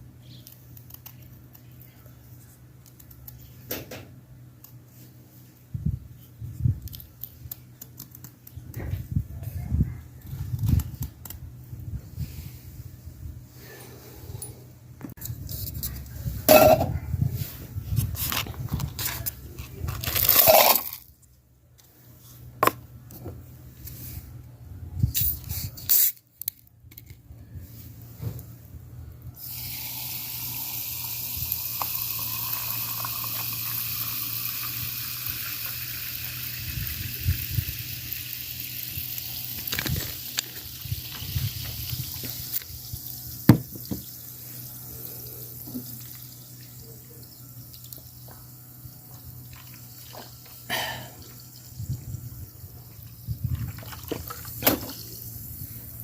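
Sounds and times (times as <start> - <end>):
water running from a tap: 30.7 - 39.7.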